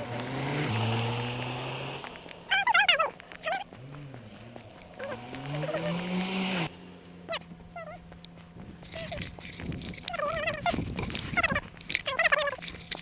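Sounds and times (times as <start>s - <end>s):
low animal call rising: 0.7s - 6.7s
animal warbling cries: 2.5s - 3.7s, 5.0s - 6.1s, 7.3s - 8.0s, 10.1s - 10.8s, 11.4s - 12.6s.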